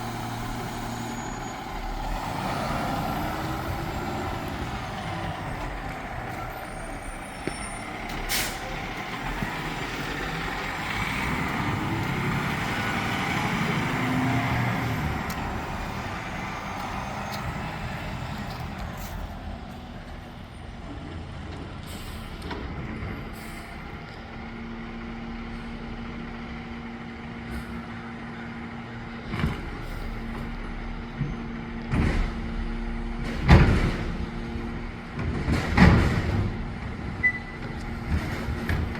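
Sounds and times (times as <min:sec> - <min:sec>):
garbage truck engine revving: 0:00.0 - 0:07.2, 0:07.8 - 0:18.8.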